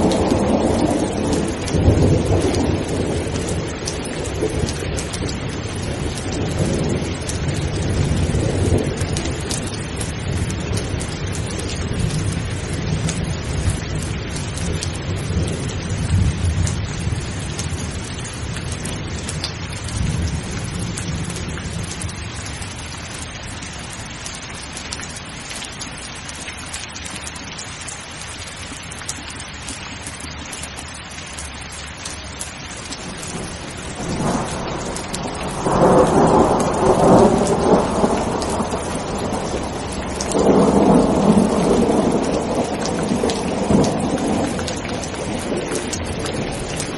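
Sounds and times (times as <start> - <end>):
thunder rumbling: 0.0 - 22.3, 32.9 - 46.9
steady rain: 0.0 - 46.9.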